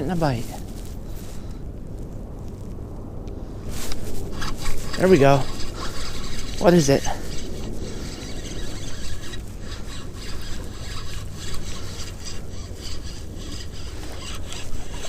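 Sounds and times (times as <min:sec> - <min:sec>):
wind rumble on microphone: 0:00.0 - 0:15.0
fishing reel handling noise: 0:03.8 - 0:15.0.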